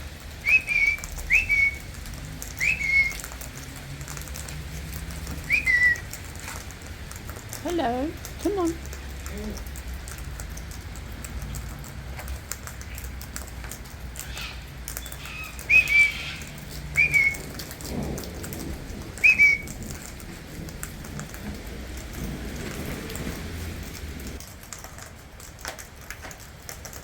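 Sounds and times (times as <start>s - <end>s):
steady rain: 0.0s - 27.0s
person whistling: 0.4s - 1.8s, 2.6s - 3.2s, 5.5s - 6.1s, 15.7s - 16.2s, 17.0s - 17.4s, 19.2s - 19.6s.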